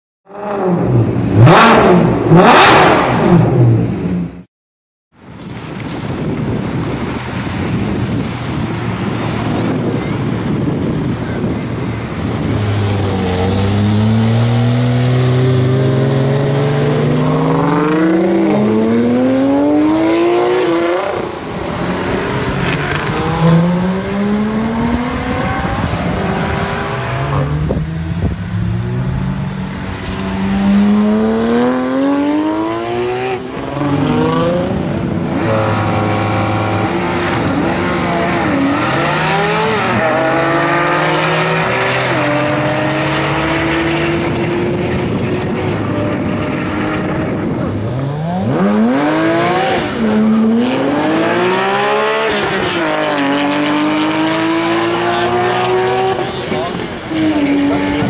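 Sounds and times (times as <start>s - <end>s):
car engines accelerating hard: 0.3s - 4.4s, 5.3s - 58.0s.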